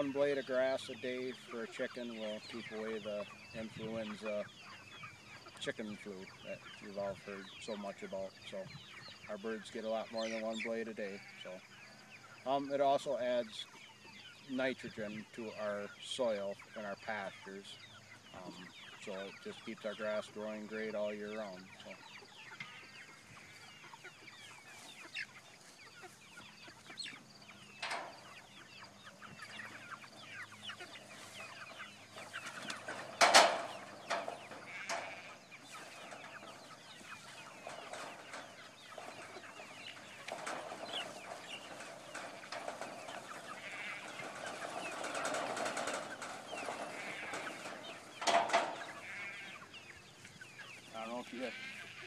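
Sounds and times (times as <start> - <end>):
chickens clucking and peeping: 0.0 - 52.0.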